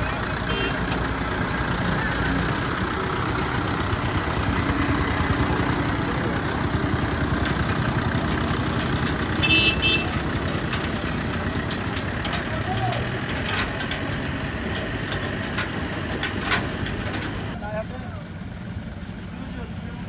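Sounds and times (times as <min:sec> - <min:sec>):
diesel engines rumbling: 0:00.0 - 0:20.0
vehicle horn toot: 0:00.4 - 0:00.9, 0:09.4 - 0:10.2.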